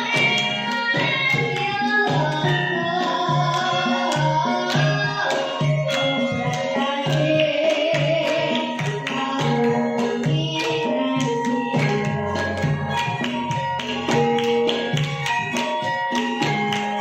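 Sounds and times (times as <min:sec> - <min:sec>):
hand drum beating: 0:00.0 - 0:17.0
sustained melodic instruments: 0:00.0 - 0:17.0.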